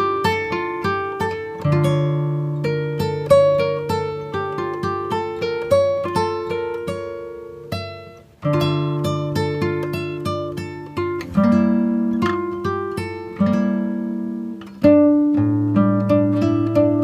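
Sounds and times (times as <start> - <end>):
acoustic guitar plucked melody: 0.0 - 17.0.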